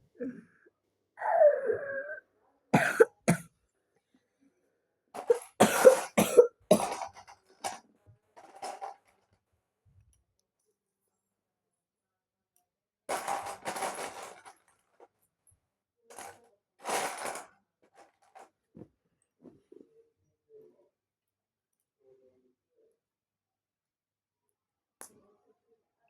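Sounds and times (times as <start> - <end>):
person coughing: 2.8 - 3.4, 5.2 - 7.0
throat clearing: 2.8 - 3.4.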